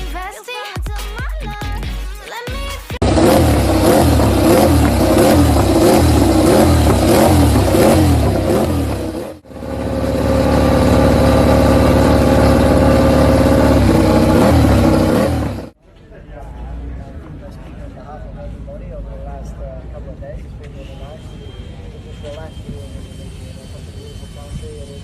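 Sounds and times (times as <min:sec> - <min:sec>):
racing motorcycle engine revving: 0:03.0 - 0:15.8.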